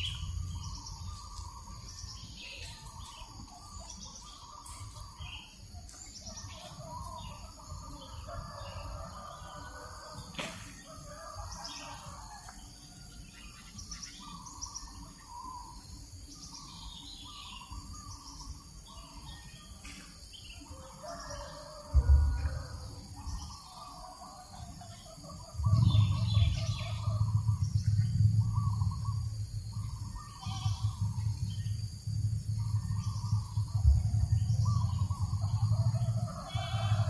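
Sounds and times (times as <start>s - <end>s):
low wind rumble: 0.0s - 11.4s, 20.2s - 37.0s
birds chirping: 0.0s - 12.4s, 13.2s - 37.0s.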